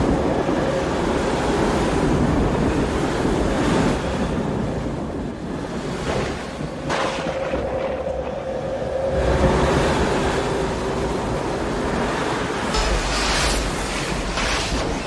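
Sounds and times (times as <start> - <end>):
strong gusting wind: 0.0 - 15.0.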